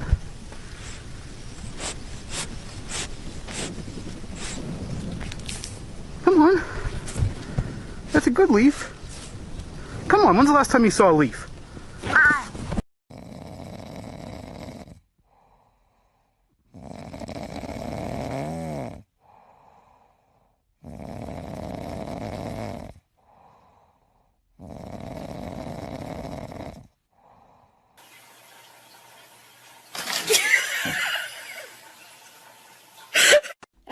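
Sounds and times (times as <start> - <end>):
pet snoring: 13.1 - 15.1, 16.6 - 19.1, 20.8 - 23.1, 24.5 - 27.0.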